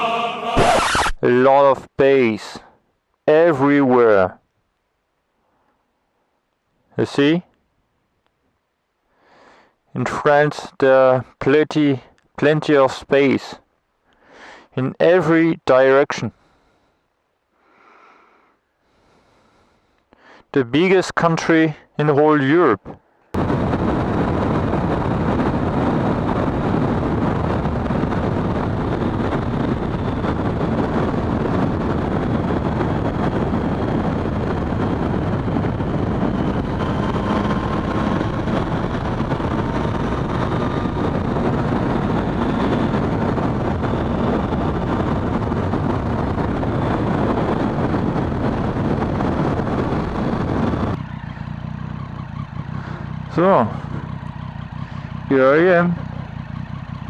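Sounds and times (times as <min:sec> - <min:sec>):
wind rushing over microphone: 0:23.3 - 0:57.0
motorcycle engine running: 0:23.4 - 0:57.0.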